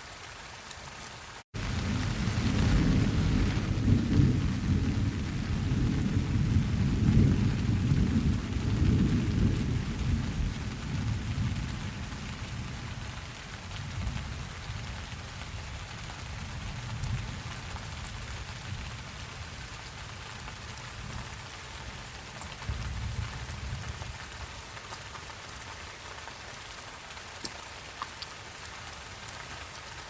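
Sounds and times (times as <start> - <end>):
steady rain falling: 0.0 - 30.0
thunder rumbling: 1.6 - 13.1.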